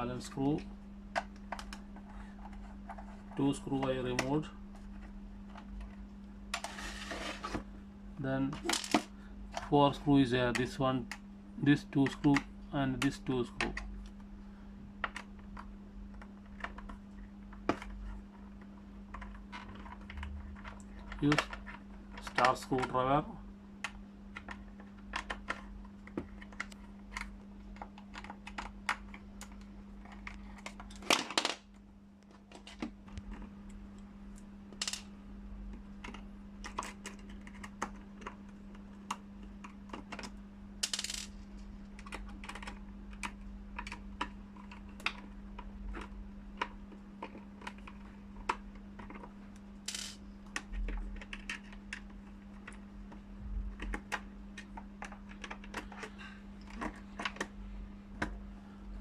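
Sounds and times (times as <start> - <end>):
steady low hum: 0.0 - 59.0
small parts clattering: 8.5 - 9.1.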